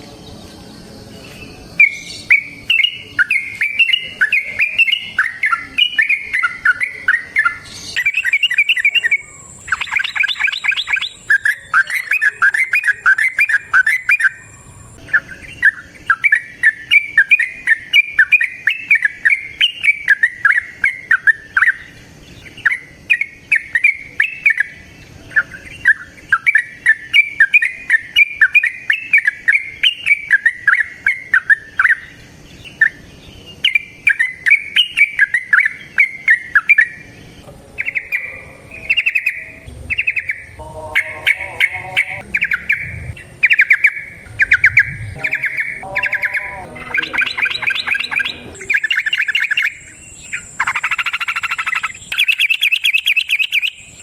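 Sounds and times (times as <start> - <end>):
bird chattering song: 0.0 - 54.0
high thin steady tone: 37.6 - 48.8.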